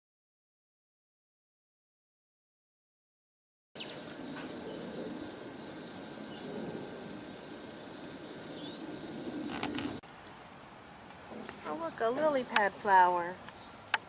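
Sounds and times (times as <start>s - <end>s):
insects trilling: 3.8s - 14.0s
low background noise: 3.8s - 14.0s.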